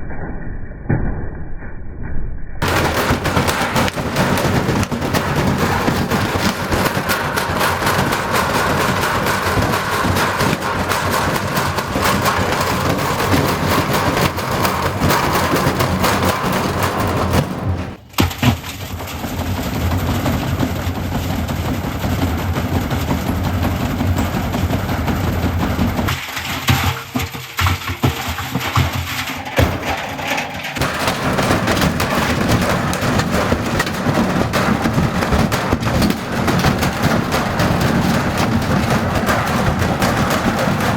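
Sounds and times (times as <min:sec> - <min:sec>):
low machine hum: 0:02.6 - 0:18.0
washing machine banging and rattling: 0:02.6 - 0:40.9.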